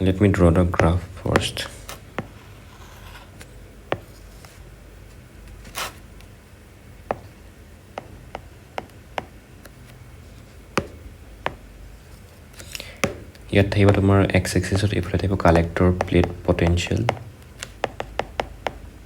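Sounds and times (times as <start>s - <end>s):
low steady hum: 0.0s - 19.0s
pen tapping and clicking: 8.0s - 9.7s, 13.0s - 14.2s, 15.5s - 18.9s.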